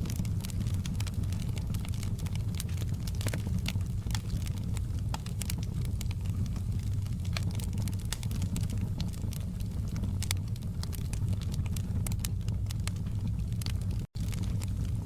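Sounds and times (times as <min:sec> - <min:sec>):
low fire rumble: 0:00.0 - 0:15.0
wood fire crackling and popping: 0:00.0 - 0:15.0.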